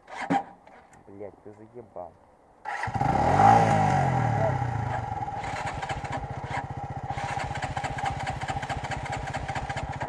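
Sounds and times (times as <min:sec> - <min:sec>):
motorcycle engine idling: 0:02.8 - 0:10.0.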